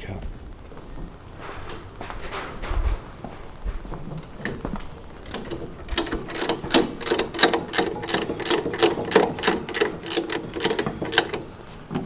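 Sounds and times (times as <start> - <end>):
steady low hum: 0.0 - 12.0
rapid mechanical clicking: 4.2 - 12.0.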